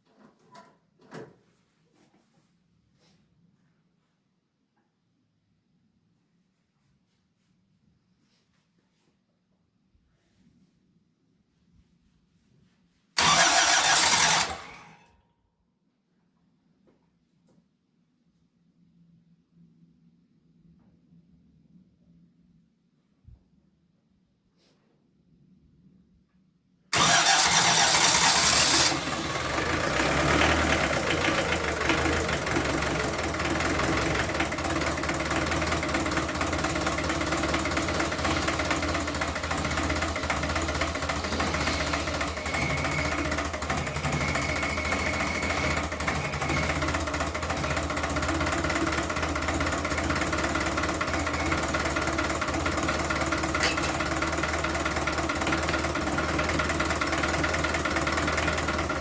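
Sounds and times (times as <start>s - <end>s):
engine cold start and idle: 13.2s - 15.2s, 26.9s - 59.0s.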